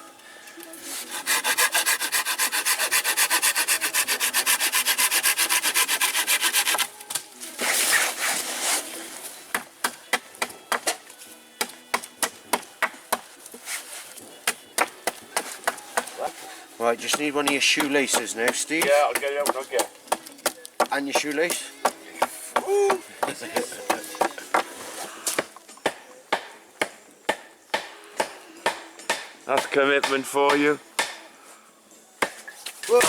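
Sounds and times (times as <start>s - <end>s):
hand tool rasping wood: 0.8s - 6.9s.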